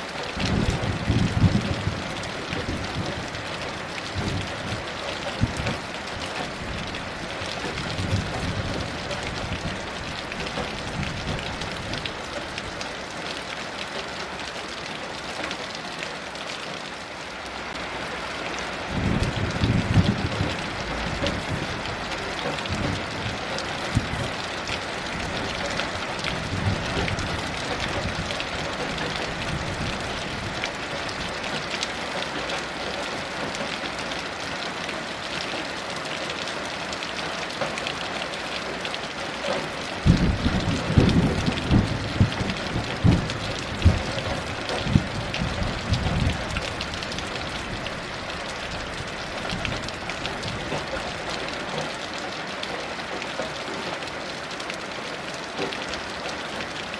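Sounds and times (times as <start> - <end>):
heavy rain: 0.0 - 56.9
thunder rumbling: 0.4 - 5.9, 18.9 - 31.4, 40.0 - 48.1.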